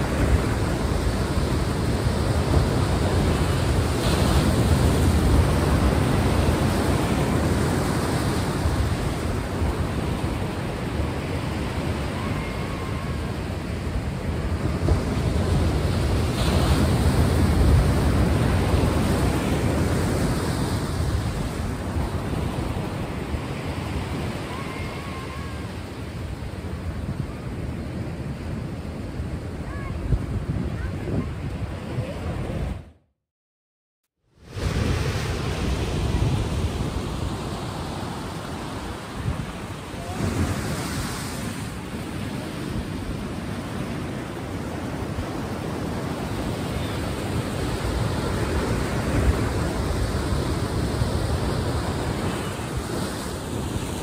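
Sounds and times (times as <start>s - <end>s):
ocean waves washing on shore: 0.0s - 32.9s, 34.4s - 54.0s.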